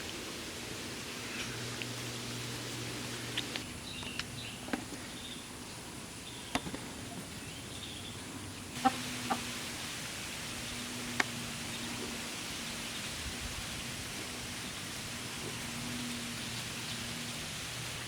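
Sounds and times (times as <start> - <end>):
steady low hum: 0.0 - 3.9
chickens clucking: 8.8 - 9.6.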